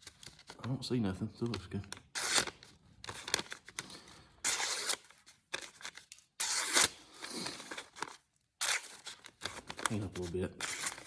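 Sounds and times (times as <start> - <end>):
knife slicing paper: 6.4 - 7.6
paper rustling: 6.8 - 11.0.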